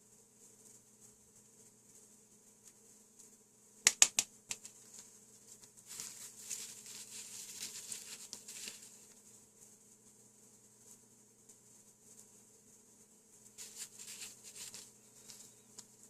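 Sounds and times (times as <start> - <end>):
crackling hiss: 0.0 - 16.0
sharp taps: 3.9 - 4.7.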